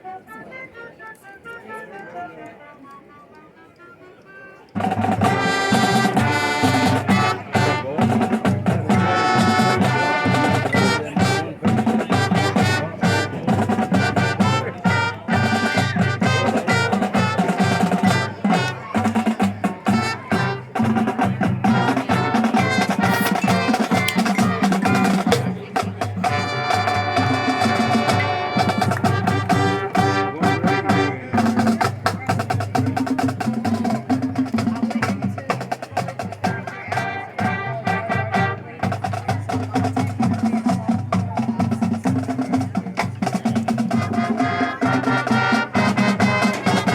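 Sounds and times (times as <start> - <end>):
brass chords: 4.8 - 32.0, 43.9 - 46.9
drumline percussion: 4.8 - 46.9.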